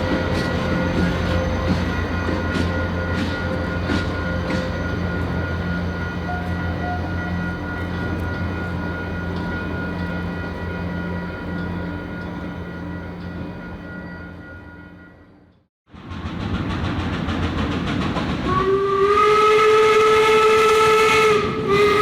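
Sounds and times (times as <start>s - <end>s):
train rumbling on rails: 0.0s - 14.4s, 15.9s - 22.0s
sharp rail clicks: 16.0s - 18.7s.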